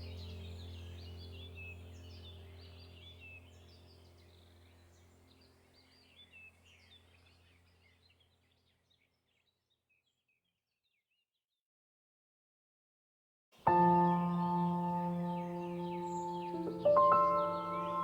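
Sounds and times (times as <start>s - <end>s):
small birds chirping: 0.0s - 11.2s, 13.7s - 18.0s
low steady drone: 13.7s - 18.0s.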